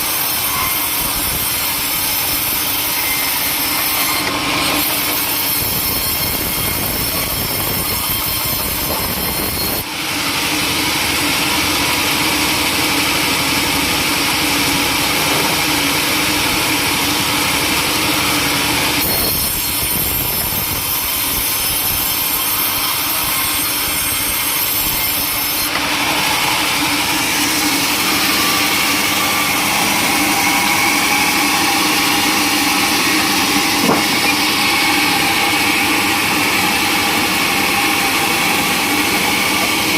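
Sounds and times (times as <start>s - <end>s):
sawmill saw cutting timber: 0.0s - 39.9s.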